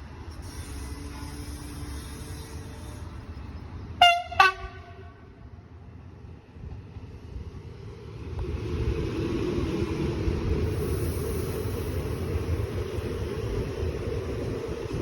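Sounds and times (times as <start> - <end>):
train passing rumble: 0.0 - 15.0.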